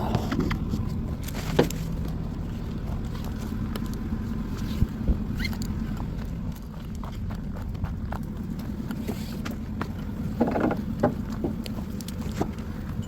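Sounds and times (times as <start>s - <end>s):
steady low hum: 0.0s - 13.0s
short squeak: 5.4s - 5.6s.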